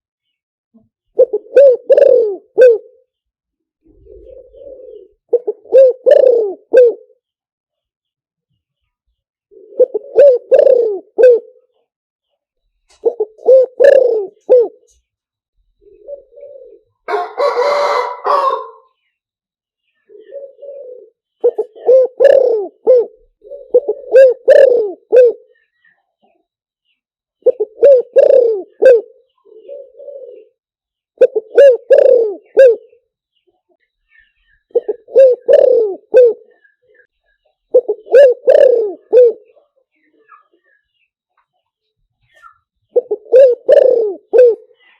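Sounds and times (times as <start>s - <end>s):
dove cooing: 1.2s - 3.1s, 3.8s - 7.2s, 9.5s - 11.7s, 13.0s - 15.0s, 15.8s - 18.9s, 20.1s - 25.6s, 27.4s - 30.6s, 31.2s - 33.0s, 34.6s - 37.1s, 37.7s - 39.8s, 42.9s - 44.9s.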